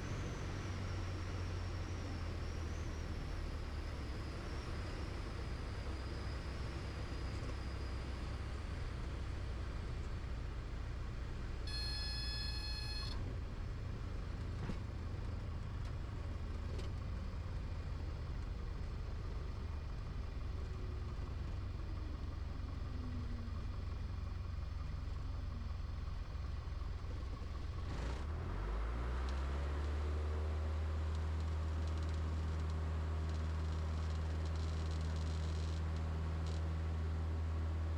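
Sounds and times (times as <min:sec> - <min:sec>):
high beeping tone: 0:11.7 - 0:13.2.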